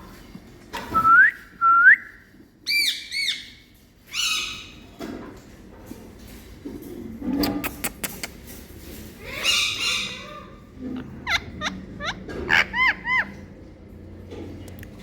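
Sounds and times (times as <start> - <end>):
parrot squawk: 9.2 - 13.5
parrot whistling and calling: 11.2 - 13.4.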